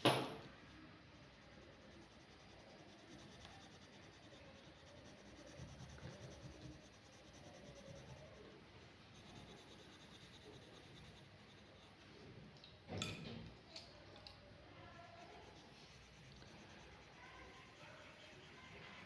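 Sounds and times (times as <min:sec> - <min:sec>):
pencil scratching on paper: 0:01.6 - 0:12.3, 0:15.0 - 0:19.0.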